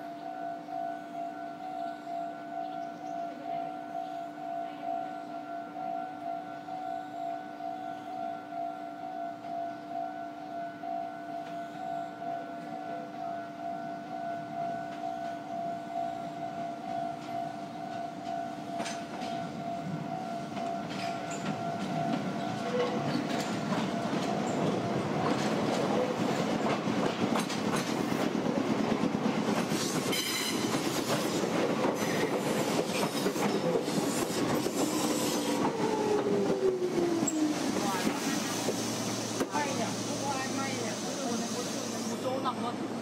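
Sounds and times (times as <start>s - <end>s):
steady warning tone: 0.0s - 25.5s
train rumble and wheel clatter: 0.0s - 43.0s.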